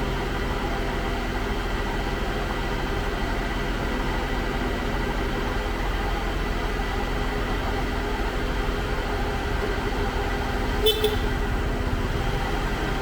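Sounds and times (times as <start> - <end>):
diesel engine running: 0.0 - 13.0
horn toot: 10.8 - 11.3.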